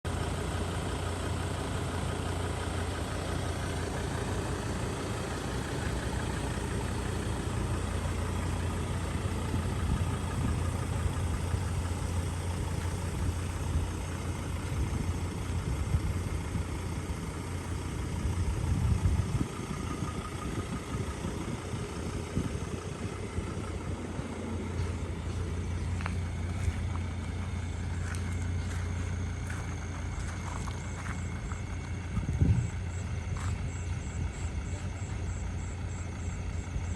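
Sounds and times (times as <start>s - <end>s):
vehicle engine idling: 0.0s - 36.9s.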